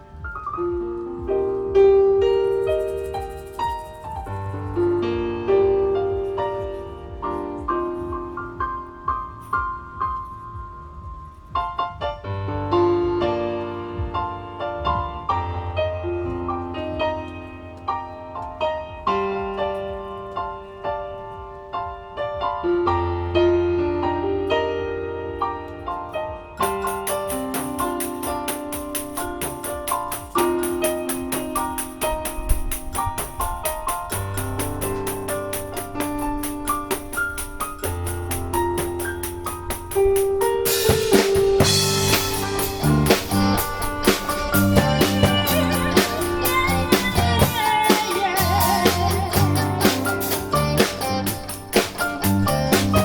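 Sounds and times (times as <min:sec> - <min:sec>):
latin fusion band playing: 0:00.0 - 0:10.2, 0:25.6 - 0:53.0
electric piano ballad: 0:00.0 - 0:53.0
held bass notes: 0:26.4 - 0:53.0
cymbals ringing: 0:26.6 - 0:53.0.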